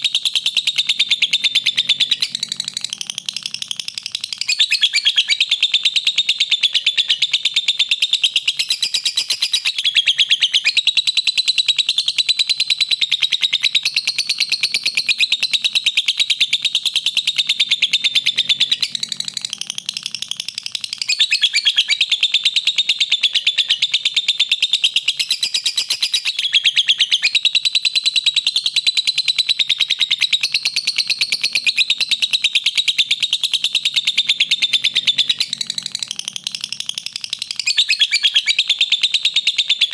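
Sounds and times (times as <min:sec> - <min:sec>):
lovebird chattering: 0:00.0 - 0:39.9.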